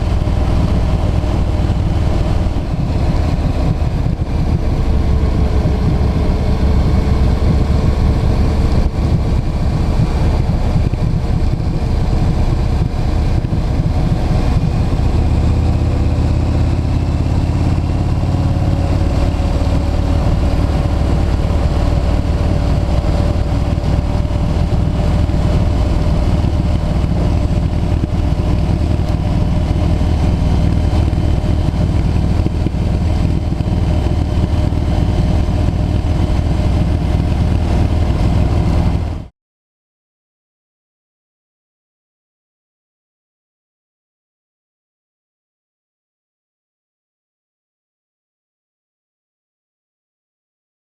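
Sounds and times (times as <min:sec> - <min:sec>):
motorcycle engine: 0:00.0 - 0:39.3
wind rumble on microphone: 0:00.0 - 0:39.3.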